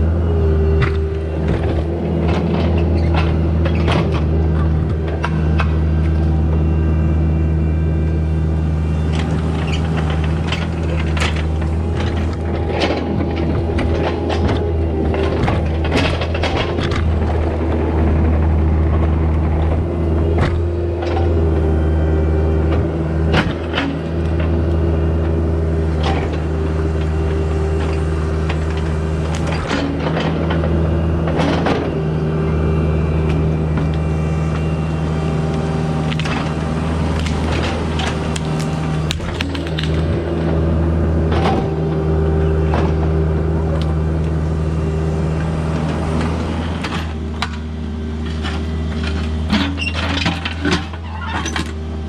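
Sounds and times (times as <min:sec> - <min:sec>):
diesel engine drone: 0:00.0 - 0:52.0.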